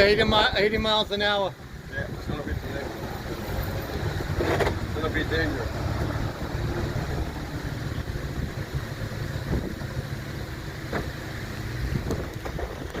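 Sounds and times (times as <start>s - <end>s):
steady rushing noise: 0.0s - 13.0s
wind buffeting microphone: 5.9s - 10.1s, 11.8s - 13.0s.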